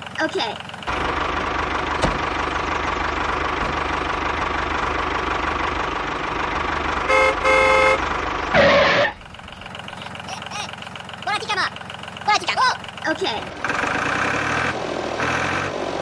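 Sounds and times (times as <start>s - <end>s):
small tractor engine running: 0.0s - 16.0s
horn toots: 7.1s - 9.2s.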